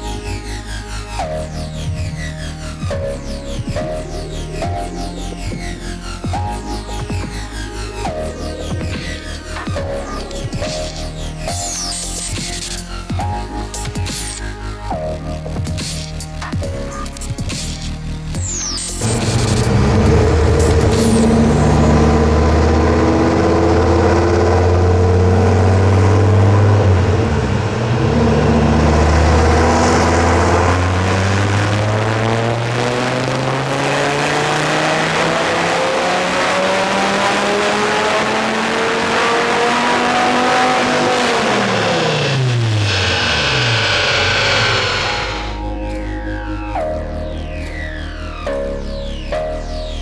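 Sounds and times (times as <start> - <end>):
car engine revving on a dyno: 19.0 - 45.7.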